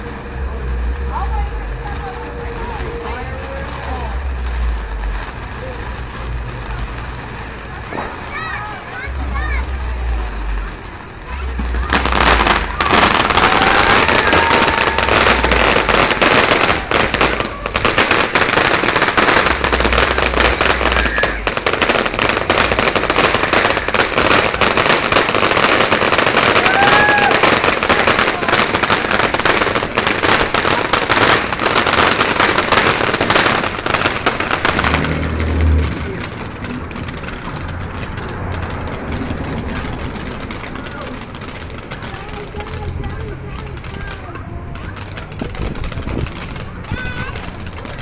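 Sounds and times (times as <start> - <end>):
firework whistles: 0.0 - 42.5
firework crackling: 0.0 - 48.0.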